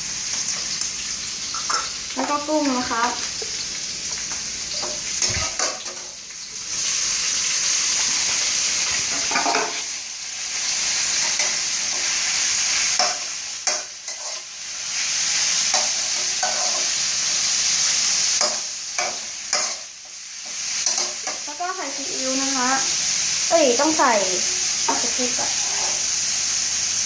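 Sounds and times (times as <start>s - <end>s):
food sizzling in hot oil: 0.0s - 27.0s
spatula scraping and knocking pan: 4.8s - 6.2s, 8.0s - 9.9s, 15.7s - 17.0s, 18.3s - 21.5s.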